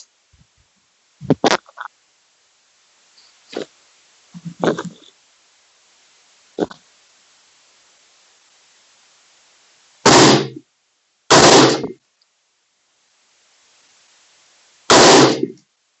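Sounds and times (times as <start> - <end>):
rifle shots with short echo: 10.1 - 10.6, 11.3 - 12.0, 14.9 - 15.6.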